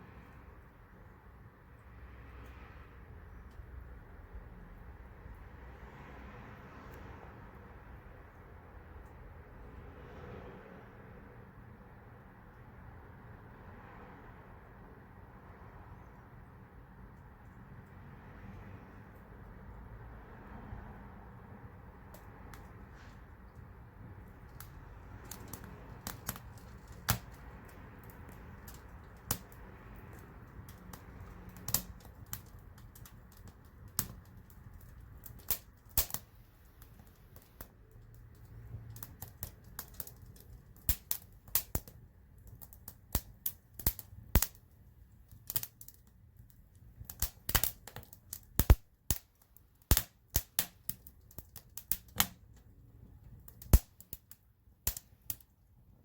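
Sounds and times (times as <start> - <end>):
campfire wood crackling and popping: 21.8 - 55.5.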